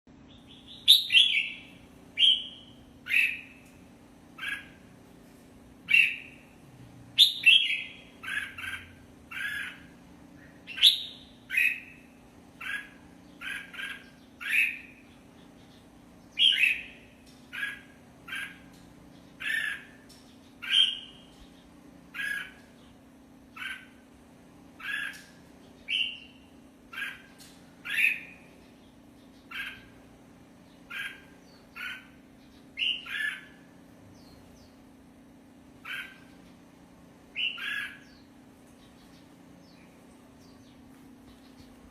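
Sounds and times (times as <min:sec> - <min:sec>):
low steady hum: 0:00.1 - 0:41.9
bird whistling song: 0:00.3 - 0:03.6, 0:07.2 - 0:09.8, 0:10.5 - 0:12.0, 0:16.3 - 0:17.0, 0:20.6 - 0:21.3, 0:25.8 - 0:27.2, 0:32.8 - 0:33.6, 0:37.3 - 0:38.3.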